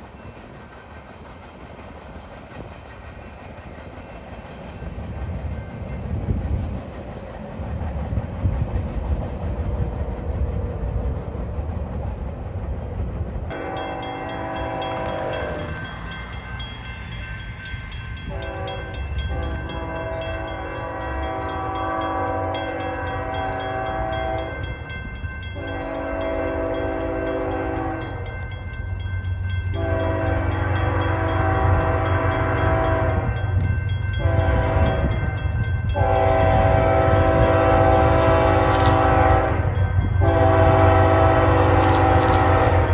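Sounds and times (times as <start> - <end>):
freight train rumble: 0.0 - 42.9
locomotive air horn blasts: 13.5 - 15.7, 18.3 - 24.6, 25.6 - 28.2, 29.8 - 33.3, 34.2 - 35.2, 36.0 - 42.9.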